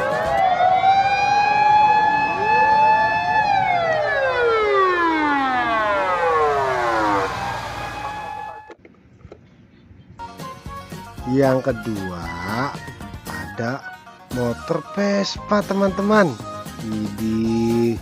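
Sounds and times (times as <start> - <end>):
siren wailing: 0.0 - 8.8.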